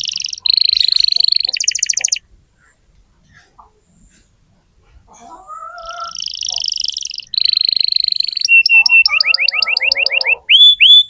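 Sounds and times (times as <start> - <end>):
canary singing trills: 0.0 - 2.2, 5.1 - 11.0.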